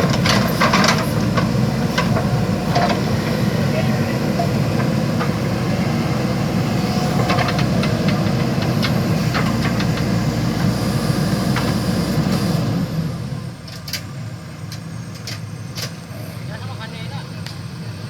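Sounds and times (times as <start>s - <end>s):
diesel engine running hard: 0.0s - 18.0s.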